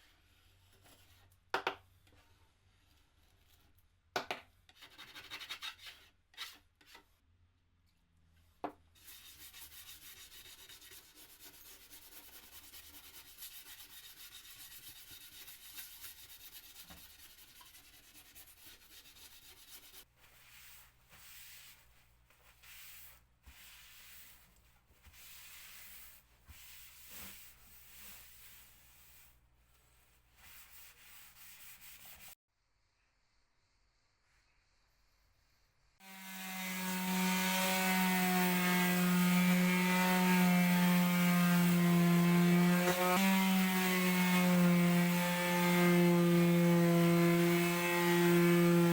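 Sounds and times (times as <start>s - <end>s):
sandpaper rubbing on wood: 9.0s - 29.4s, 30.4s - 32.4s.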